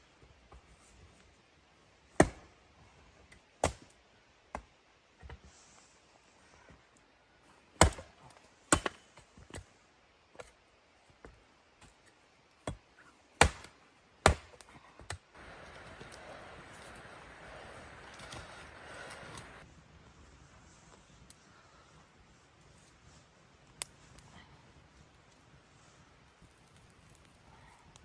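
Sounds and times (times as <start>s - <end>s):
wood being chopped: 2.2s - 2.5s, 8.7s - 9.0s, 13.4s - 14.6s.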